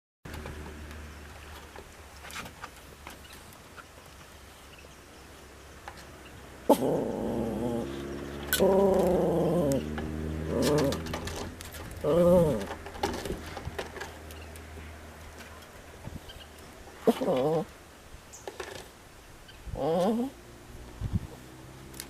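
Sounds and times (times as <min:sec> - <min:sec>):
dog growling: 0:06.7 - 0:12.8, 0:17.0 - 0:17.7, 0:19.7 - 0:20.4.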